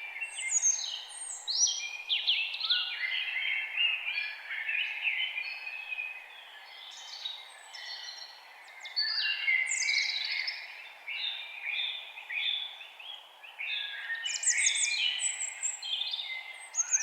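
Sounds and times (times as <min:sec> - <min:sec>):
forest birds singing: 0:00.0 - 0:17.0.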